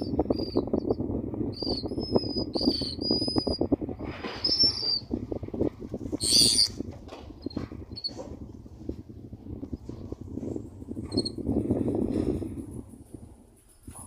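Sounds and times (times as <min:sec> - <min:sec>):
low crackling rumble: 0:00.0 - 0:14.0
tern harsh grating calls: 0:06.2 - 0:06.7.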